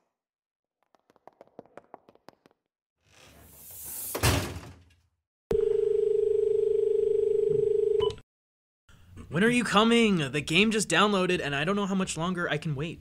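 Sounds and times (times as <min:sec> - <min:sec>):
door thump: 0:04.2 - 0:04.9
telephone ringback tone: 0:05.5 - 0:08.2.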